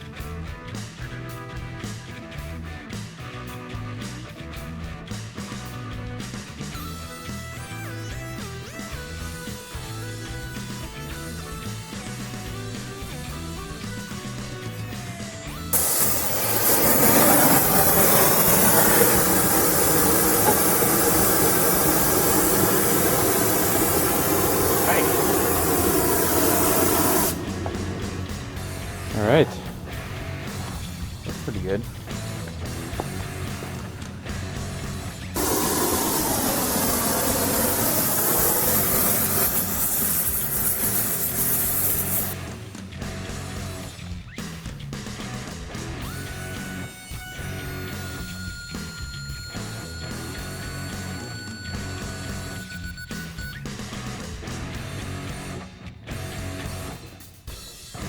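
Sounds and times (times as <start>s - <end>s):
gas torch flame hissing: 15.8s - 42.4s.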